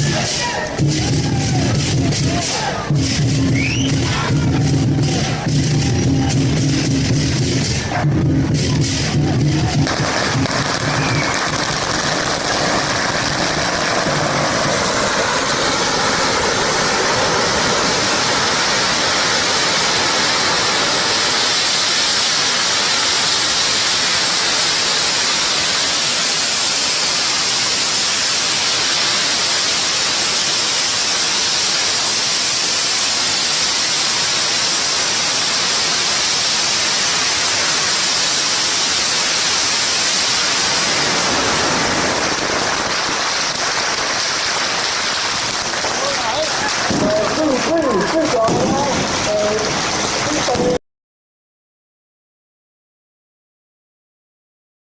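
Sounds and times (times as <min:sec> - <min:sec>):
firecrackers crackling: 0:00.0 - 0:50.8.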